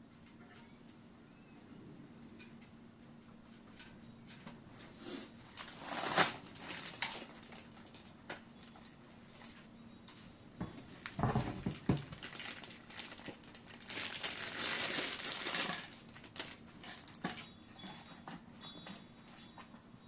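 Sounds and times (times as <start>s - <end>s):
packaging rustling and crinkling: 5.5s - 8.8s, 11.0s - 19.7s.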